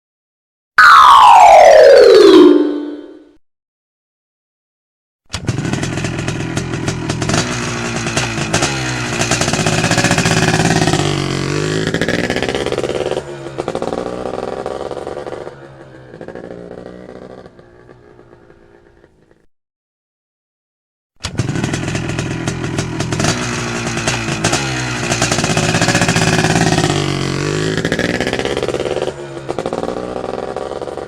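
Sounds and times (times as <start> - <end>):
motorcycle engine revving: 5.3 - 19.5, 21.2 - 31.0.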